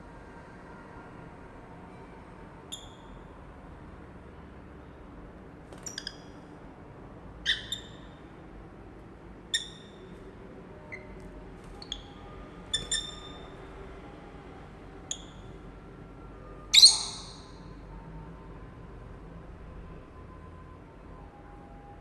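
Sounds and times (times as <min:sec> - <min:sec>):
lovebirds chirping: 0:05.8 - 0:06.3, 0:07.4 - 0:08.2, 0:09.5 - 0:10.2, 0:10.9 - 0:14.0, 0:15.1 - 0:15.5, 0:16.7 - 0:17.5.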